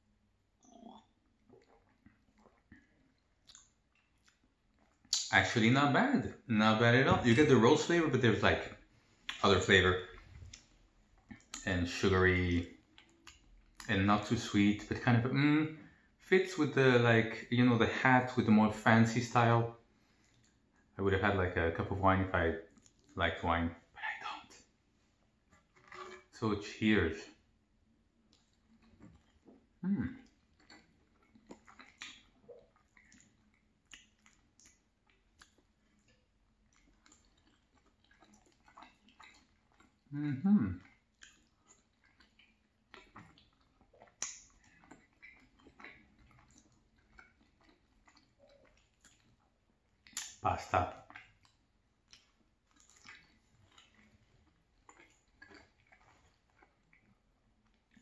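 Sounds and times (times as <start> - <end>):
wet chewing mouth clicks and smacks: 0.5 - 5.6, 7.1 - 16.1, 19.4 - 21.0, 22.6 - 26.5, 27.2 - 58.0
low mouth sound: 28.9 - 30.9, 40.1 - 41.0.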